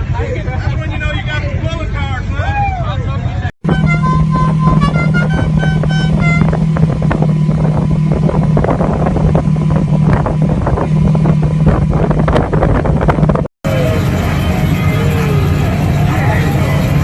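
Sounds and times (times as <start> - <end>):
off-road vehicle engine droning: 0.0 - 17.0
wind buffeting microphone: 3.6 - 17.0.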